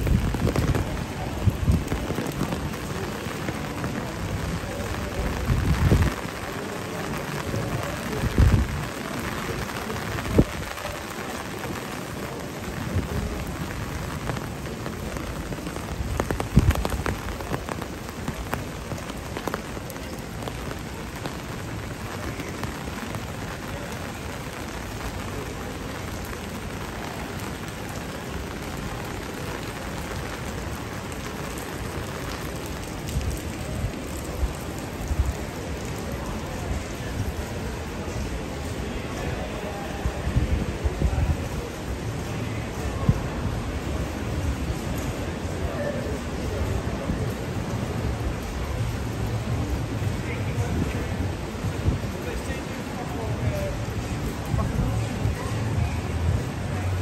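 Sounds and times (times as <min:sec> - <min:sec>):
steady rain hissing: 0:00.0 - 0:57.0.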